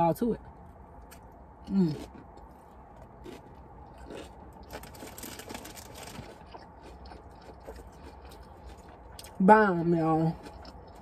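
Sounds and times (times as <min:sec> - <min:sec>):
quiet chewing and mouth clicks: 0:06.4 - 0:09.4, 0:10.4 - 0:11.0.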